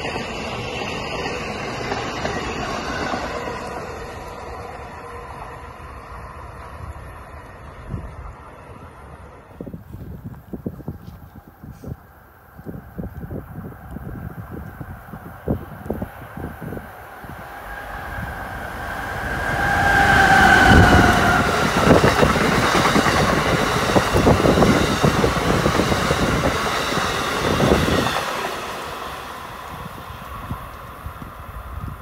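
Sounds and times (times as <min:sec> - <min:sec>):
passenger train passing: 0:00.0 - 0:32.0
wheels clattering over rails: 0:19.2 - 0:29.0.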